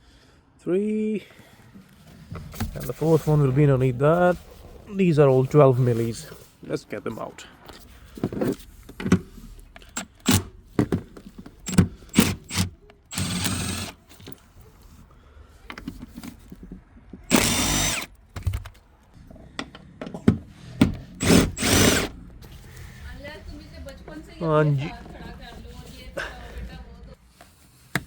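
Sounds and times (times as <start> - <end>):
tools and metal clicking: 9.8 - 10.5
power drill running: 9.9 - 10.5, 11.6 - 14.1, 17.3 - 18.1, 21.1 - 22.1.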